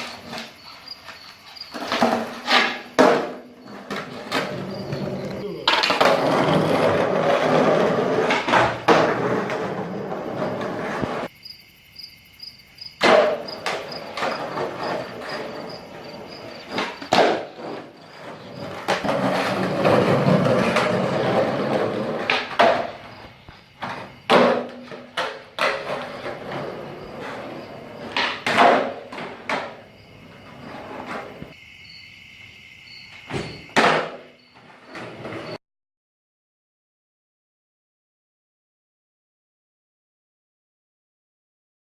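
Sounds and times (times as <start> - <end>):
skateboard popping and landing: 0.0 - 11.3, 13.0 - 31.6, 33.3 - 35.6
skateboard wheels rolling on pavement: 0.0 - 11.8, 12.4 - 35.6.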